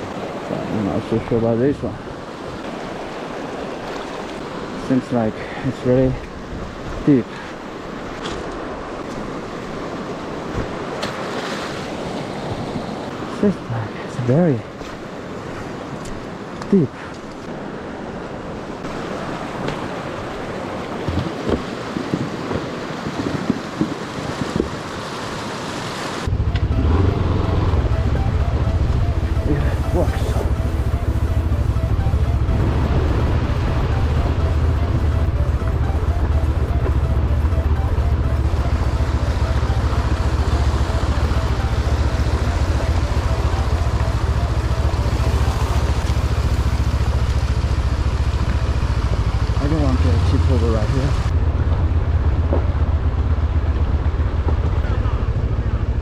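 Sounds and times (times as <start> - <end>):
water rushing: 0.0 - 56.0
motorcycle engine running: 26.2 - 56.0.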